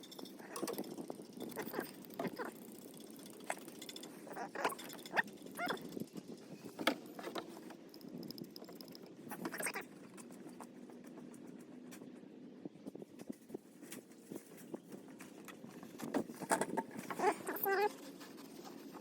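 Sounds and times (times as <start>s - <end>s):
tools and metal parts clicking: 0.0s - 11.4s.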